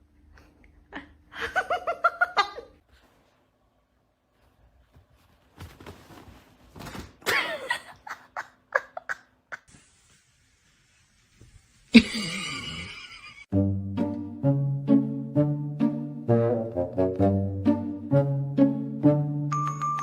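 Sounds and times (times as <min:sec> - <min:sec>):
person laughing: 0:07.2 - 0:09.7, 0:11.9 - 0:13.5.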